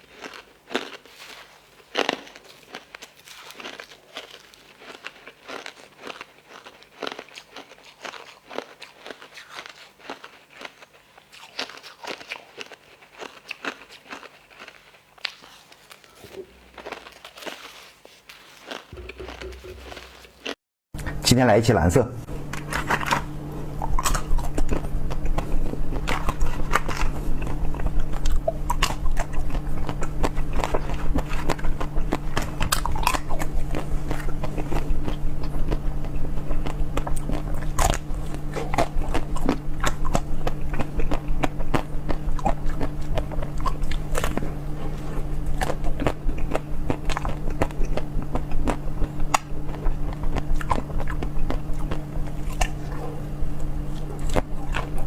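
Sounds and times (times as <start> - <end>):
crisp bites and chewing: 0.0 - 20.6, 23.8 - 55.0
steady low hum: 14.7 - 55.0.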